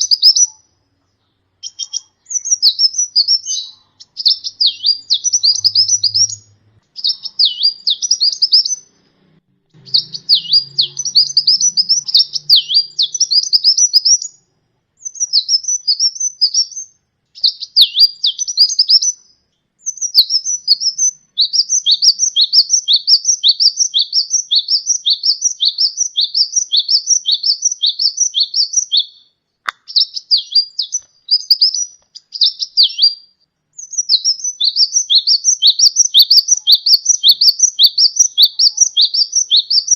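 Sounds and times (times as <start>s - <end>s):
bird singing high quick notes: 1.6s - 8.9s, 9.7s - 14.4s.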